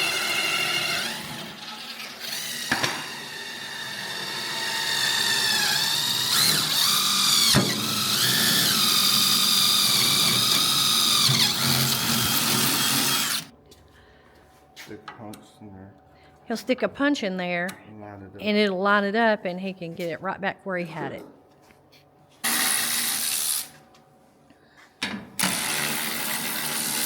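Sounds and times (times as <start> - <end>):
electric power drill whining: 0.0 - 13.5, 22.4 - 23.8, 25.4 - 27.0.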